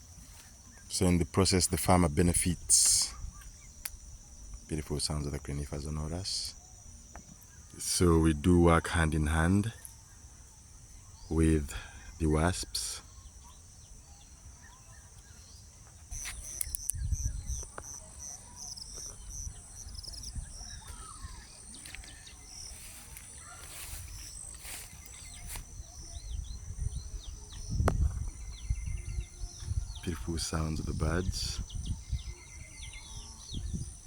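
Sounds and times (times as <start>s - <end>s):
bird chirps: 0.1s - 34.0s
wind rumble on microphone: 16.1s - 18.0s, 19.0s - 21.5s, 23.8s - 34.0s.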